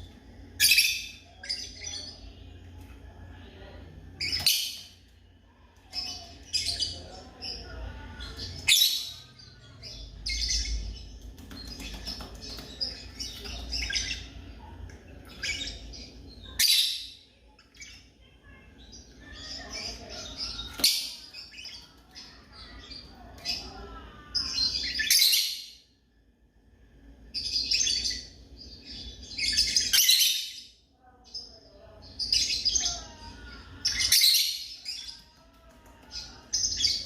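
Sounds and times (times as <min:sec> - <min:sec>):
lovebirds chirping: 0:05.8 - 0:25.8.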